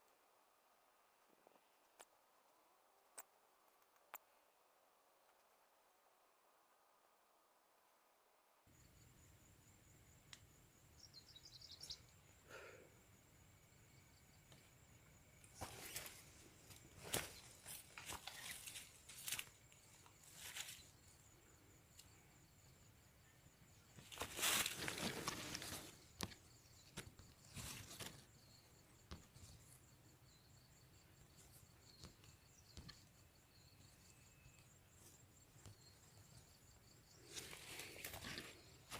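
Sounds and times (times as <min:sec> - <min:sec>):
insects trilling: 0:08.7 - 0:38.9.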